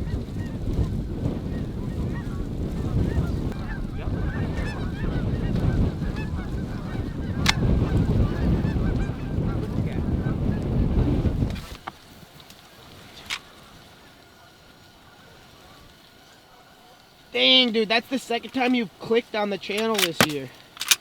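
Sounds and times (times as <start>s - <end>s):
geese honking and clucking: 0.0s - 10.9s, 11.6s - 21.0s
wind rumbling on microphone: 0.0s - 16.1s
sharp click: 19.8s - 21.0s.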